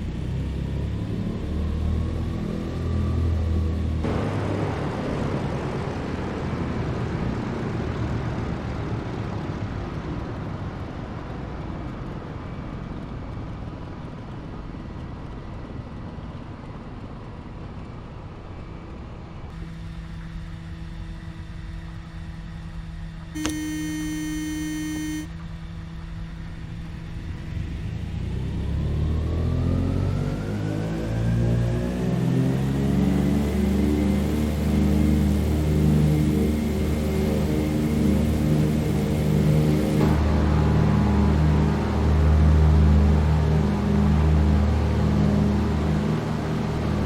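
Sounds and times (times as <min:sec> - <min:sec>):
propeller plane engines droning: 0:00.0 - 0:47.0
quiet steady hum: 0:19.6 - 0:25.4
buzzy beep tone: 0:23.4 - 0:25.3.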